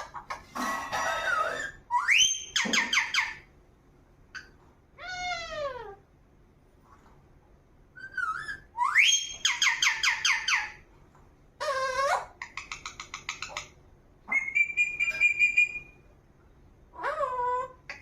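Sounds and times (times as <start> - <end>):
parrot squawk: 0.0 - 3.5, 4.4 - 6.0, 8.0 - 10.8, 11.6 - 16.0
parrot whistling and calling: 1.0 - 3.5, 8.0 - 10.8, 11.6 - 13.7, 14.3 - 16.1.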